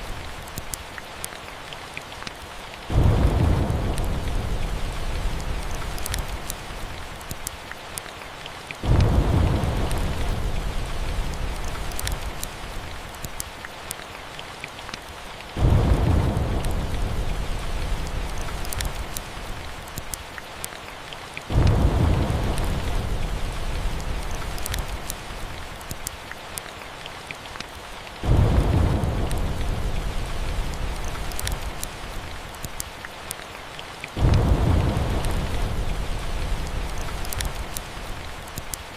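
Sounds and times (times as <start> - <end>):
steady rain: 0.0 - 38.9
thunder rumbles: 2.9 - 7.3, 8.8 - 13.1, 15.5 - 20.1, 21.5 - 25.9, 28.2 - 32.6, 34.2 - 38.7.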